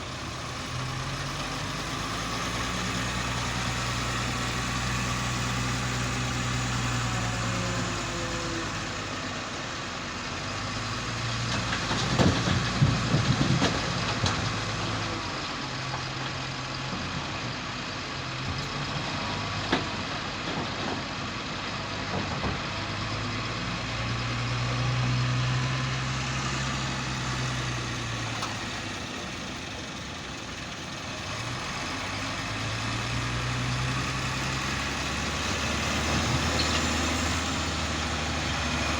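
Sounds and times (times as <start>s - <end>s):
heavy vehicle engine revving: 0.0s - 38.9s
loud knocks and clatter: 11.4s - 15.0s, 22.1s - 22.8s.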